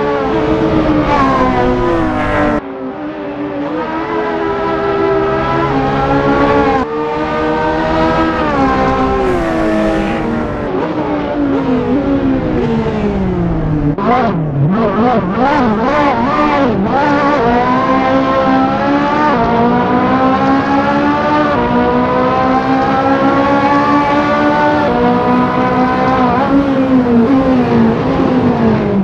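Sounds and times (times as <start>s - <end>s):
sports car engine revving: 3.6s - 29.0s.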